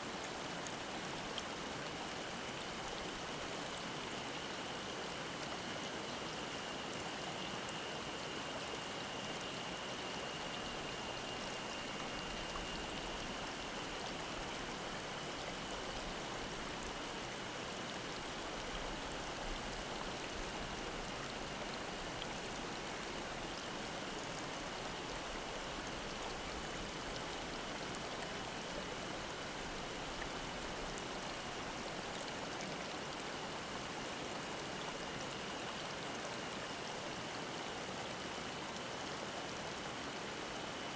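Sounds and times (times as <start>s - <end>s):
stream babbling: 0.0s - 40.9s
cicadas droning: 5.9s - 23.4s.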